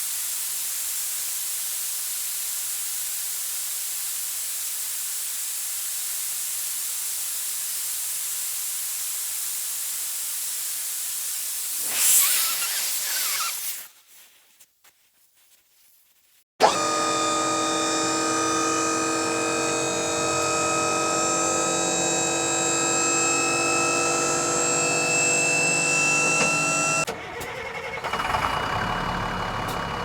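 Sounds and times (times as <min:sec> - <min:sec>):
water spraying from hose: 0:00.0 - 0:13.9.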